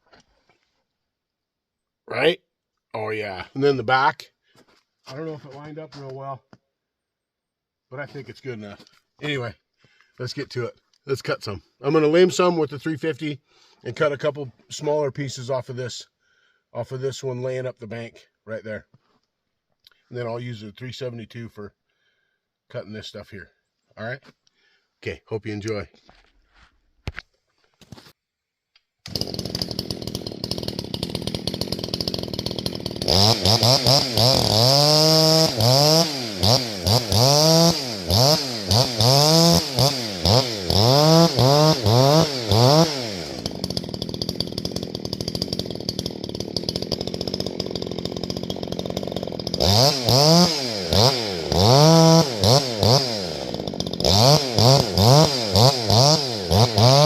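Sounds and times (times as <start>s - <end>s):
chainsaw idling and revving: 29.1s - 57.0s.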